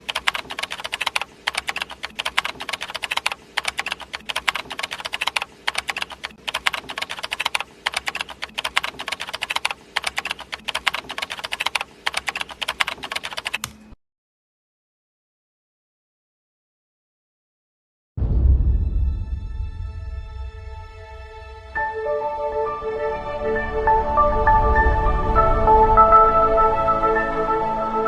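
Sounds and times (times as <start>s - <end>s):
computer keyboard typing: 0.0s - 13.9s.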